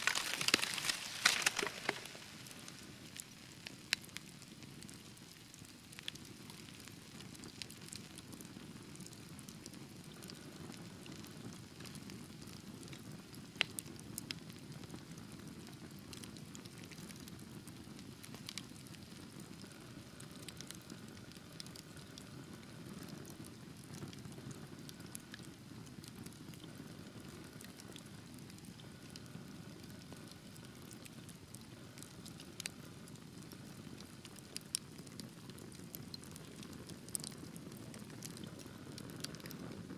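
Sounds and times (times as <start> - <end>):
wood fire crackling: 0.0 - 8.0, 16.2 - 39.9.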